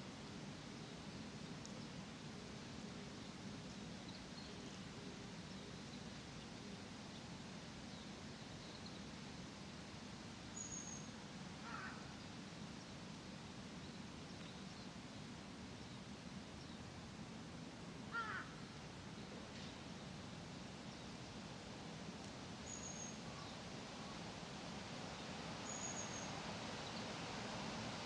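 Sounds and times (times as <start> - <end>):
crow cawing: 11.6 - 12.0, 18.1 - 18.6.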